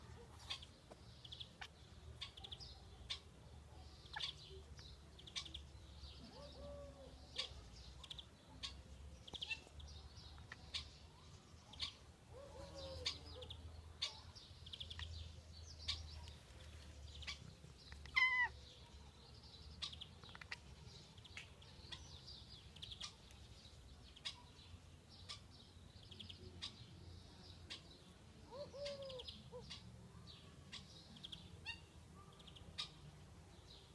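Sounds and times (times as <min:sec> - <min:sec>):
small birds chirping: 0:00.0 - 0:33.9
cat meowing: 0:18.1 - 0:18.6.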